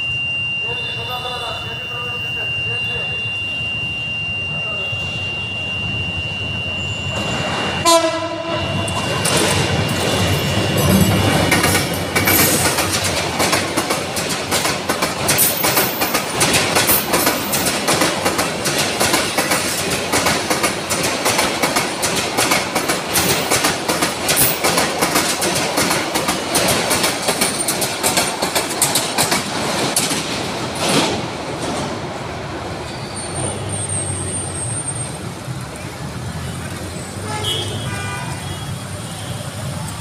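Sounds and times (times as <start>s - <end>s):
street noise: 0.0s - 40.0s
train wheels clattering: 8.9s - 32.2s.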